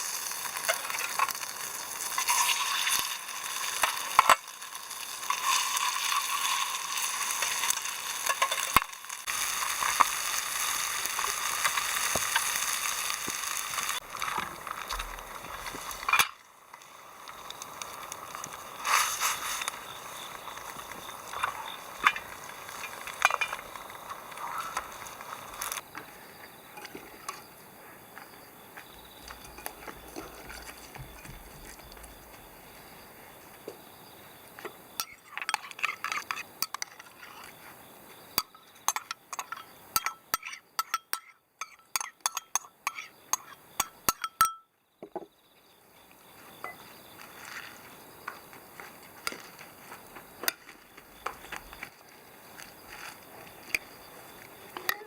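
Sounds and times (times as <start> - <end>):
dishes and utensils clinking: 35.0 - 37.5, 38.4 - 44.6.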